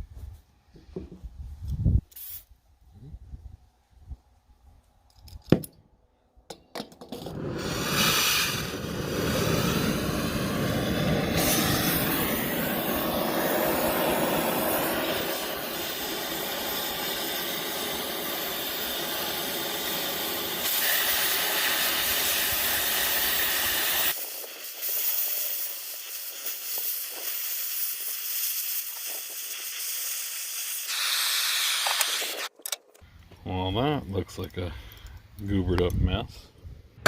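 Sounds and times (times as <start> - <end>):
cutting torch hissing: 7.2 - 32.5
low rumble: 8.6 - 15.2.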